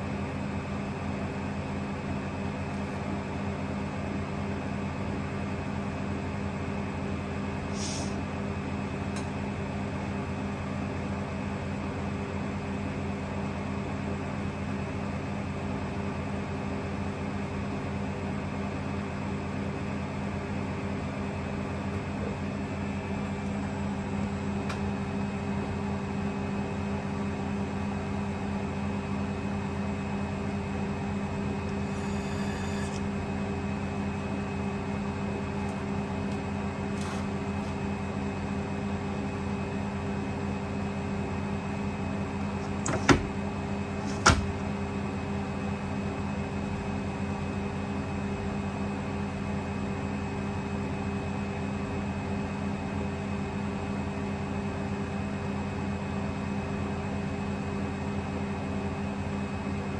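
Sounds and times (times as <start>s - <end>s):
washing machine spinning: 14.9s - 47.8s.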